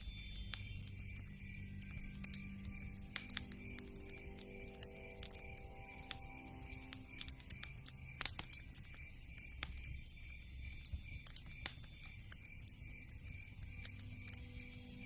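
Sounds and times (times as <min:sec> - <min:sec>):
campfire crackling and popping: 0:00.0 - 0:15.0
faint high chirp: 0:00.0 - 0:15.0.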